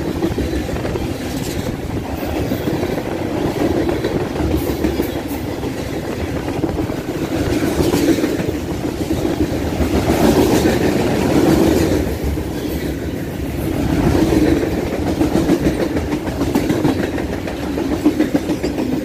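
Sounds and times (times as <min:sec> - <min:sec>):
steel wheels rumbling on rail: 0:00.0 - 0:19.0
wheels clicking over rail joints: 0:13.9 - 0:19.0.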